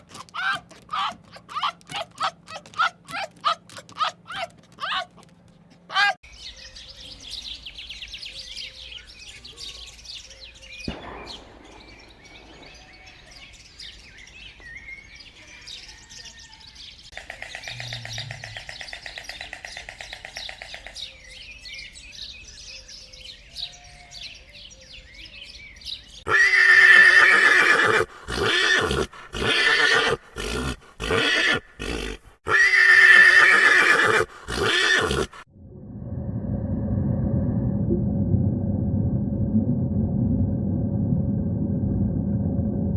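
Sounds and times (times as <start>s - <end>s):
faint bird chirping: 6.2s - 26.3s
loud animal calls: 17.1s - 20.8s, 26.3s - 35.4s.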